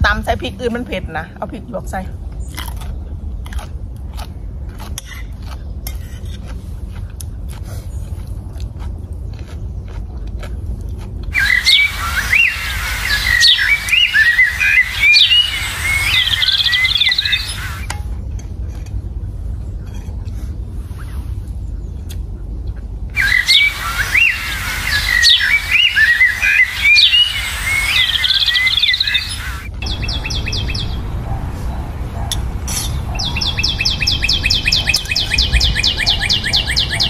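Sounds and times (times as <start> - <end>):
low rumble: 0.0 - 37.0
small birds chirping: 11.3 - 17.9, 21.0 - 37.0.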